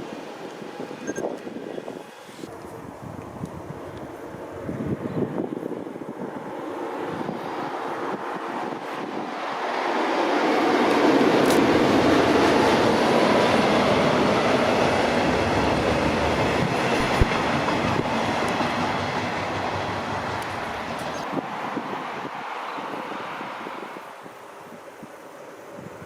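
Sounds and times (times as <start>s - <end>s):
train wheels rumbling on rail: 6.1s - 24.0s.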